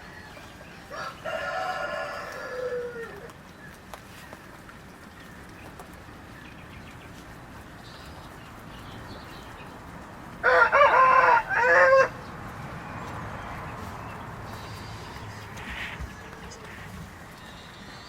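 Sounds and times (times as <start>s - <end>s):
rooster crowing: 0.0s - 3.3s, 10.4s - 12.3s
faint background noise: 0.0s - 18.0s.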